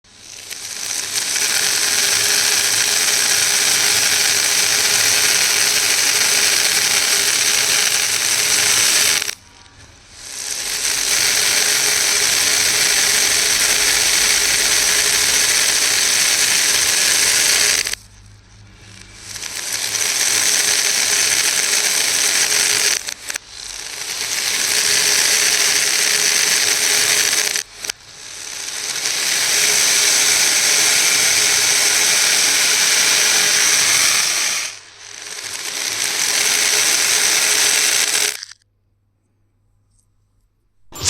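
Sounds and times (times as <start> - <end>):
small beads rattling together: 37.6 - 38.6.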